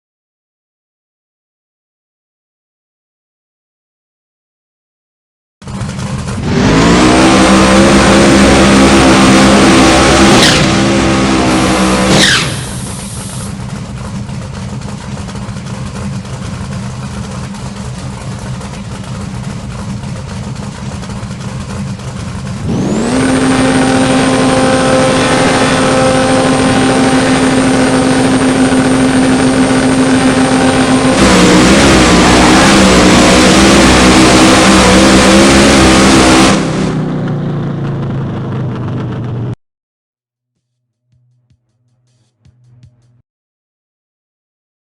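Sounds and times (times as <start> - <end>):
drag car engine revving: 5.6 - 39.6
high supercharger whine: 5.6 - 39.6.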